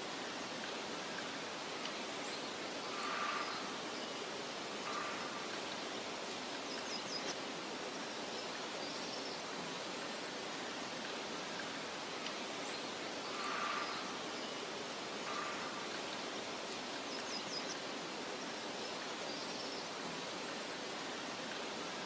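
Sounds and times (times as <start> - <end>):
wind through grass: 0.0 - 22.0
faint bird chirps: 2.1 - 6.0, 12.6 - 20.0.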